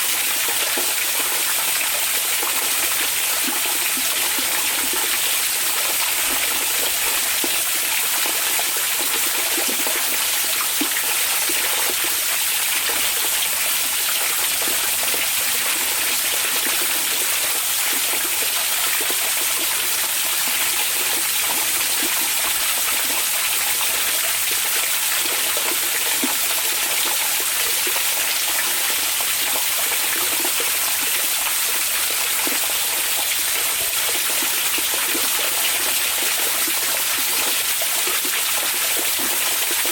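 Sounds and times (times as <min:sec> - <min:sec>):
water flowing and splashing: 0:00.0 - 0:39.9.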